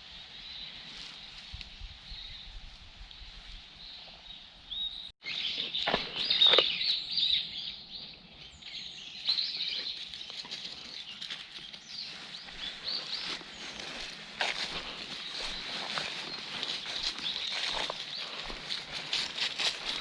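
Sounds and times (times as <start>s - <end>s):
rustling in undergrowth: 0.0s - 4.4s, 9.2s - 20.0s
small birds chirping: 3.2s - 20.0s.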